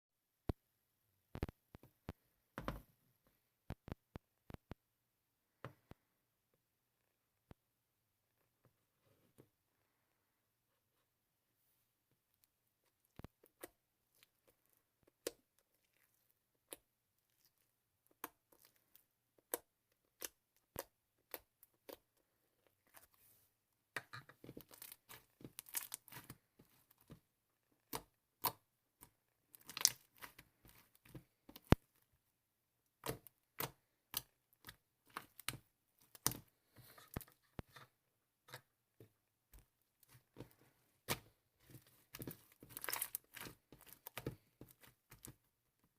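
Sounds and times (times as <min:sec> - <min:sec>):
sharp clicks and taps: 0:01.3 - 0:02.8
crinkling and rustling: 0:24.0 - 0:27.9, 0:35.0 - 0:45.9.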